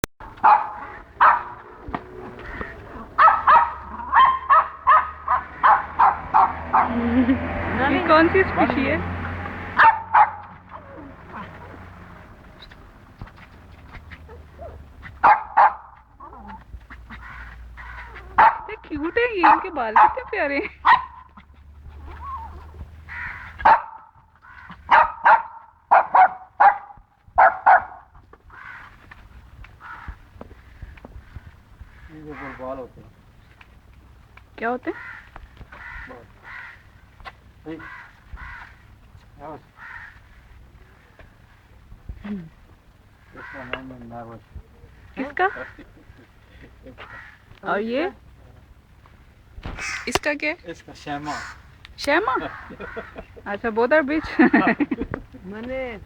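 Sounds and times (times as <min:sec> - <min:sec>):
puppy yapping: 0:00.3 - 0:07.1, 0:09.7 - 0:18.8, 0:19.4 - 0:28.9, 0:49.7 - 0:50.3, 0:51.3 - 0:51.7.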